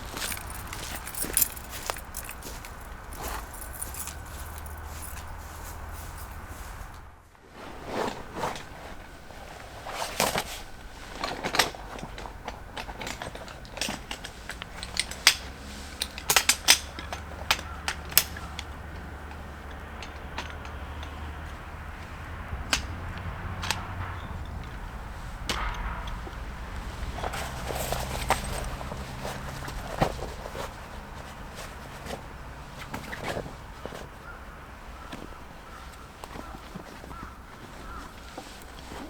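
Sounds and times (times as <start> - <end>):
sharp knocks and clicks: 11.5 - 28.9
faint low rumble: 21.5 - 31.3.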